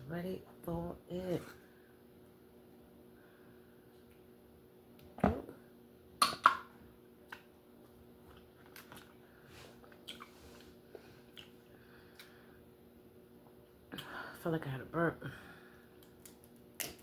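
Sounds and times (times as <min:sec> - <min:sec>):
lobster shell cracking: 0:16.0 - 0:17.0.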